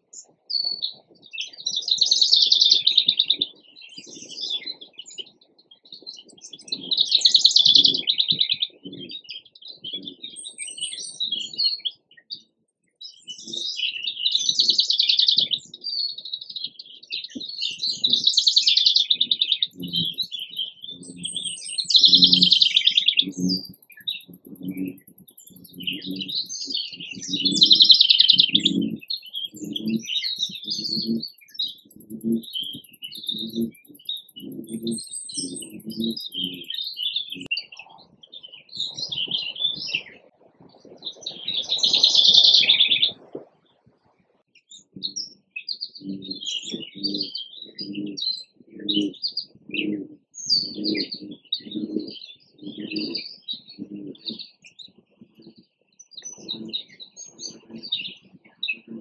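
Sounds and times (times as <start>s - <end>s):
songbirds singing: 19.2s - 40.2s, 44.6s - 59.0s
short low pulses: 28.4s - 36.7s.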